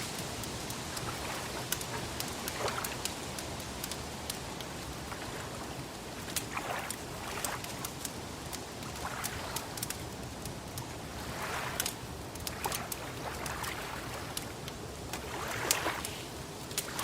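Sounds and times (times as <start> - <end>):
water lapping: 0.0 - 17.0
wood fire crackling and popping: 0.0 - 17.0.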